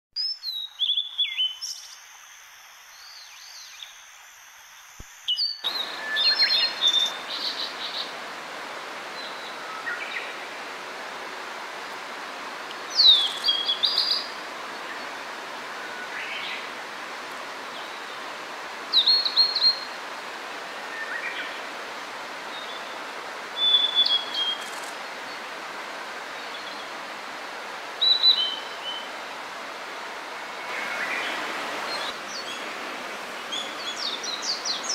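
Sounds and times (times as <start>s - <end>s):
bird singing whistled phrases: 0.2s - 2.0s, 5.2s - 7.6s, 23.6s - 24.6s, 28.0s - 29.0s
steady hiss: 0.4s - 34.9s.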